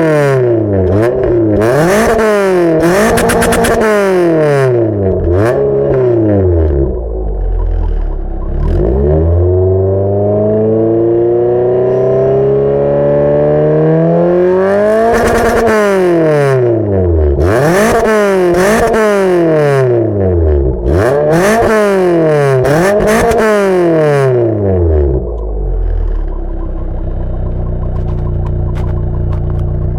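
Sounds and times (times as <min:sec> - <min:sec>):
car engine revving: 0:00.0 - 0:29.9
car engine idling: 0:00.6 - 0:09.8, 0:20.0 - 0:29.9.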